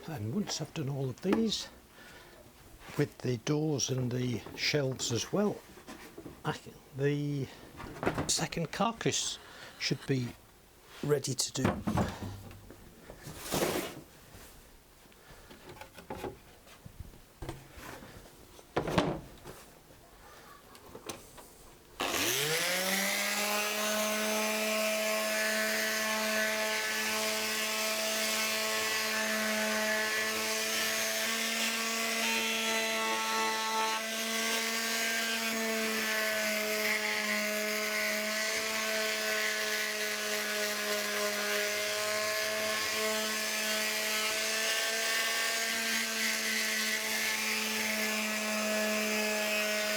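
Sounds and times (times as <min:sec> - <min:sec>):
handling knocks: 0:07.8 - 0:08.4, 0:11.6 - 0:12.8
electric sheet sander whining: 0:22.0 - 0:49.9.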